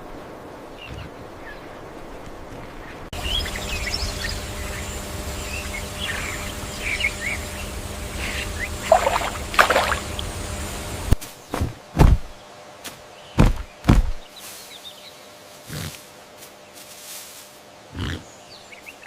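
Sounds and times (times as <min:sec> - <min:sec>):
small birds chirping: 0:00.7 - 0:11.7, 0:12.3 - 0:17.1, 0:17.9 - 0:19.0
low outdoor rumble: 0:03.1 - 0:11.2.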